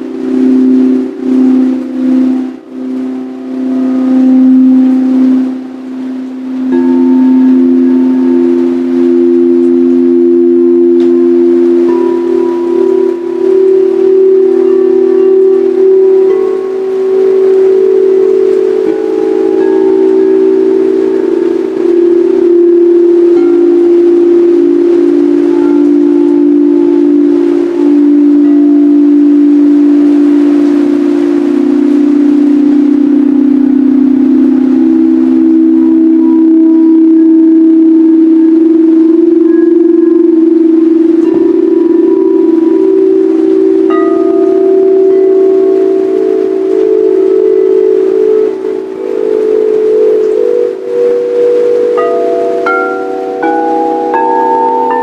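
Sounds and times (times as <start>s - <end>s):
singing bowls ringing: 0.0s - 55.0s.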